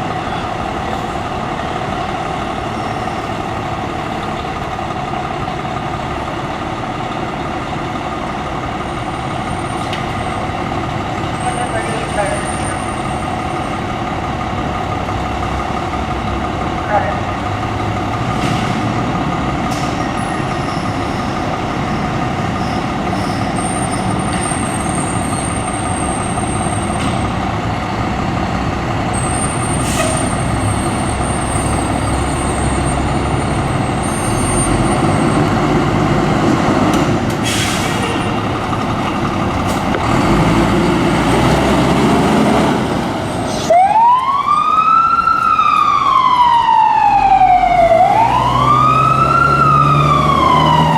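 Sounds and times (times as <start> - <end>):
fire truck engine running: 0.0 - 50.9
siren wailing: 43.6 - 50.9.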